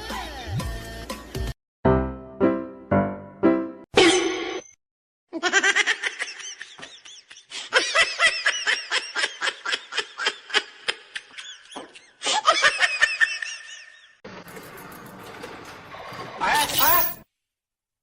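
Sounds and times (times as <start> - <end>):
high-pitched laughter: 5.4 - 14.2.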